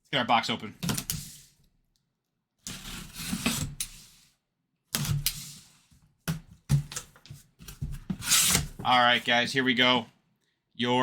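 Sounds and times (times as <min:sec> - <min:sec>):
cardboard box rustling and scraping: 0:07.4 - 0:09.3.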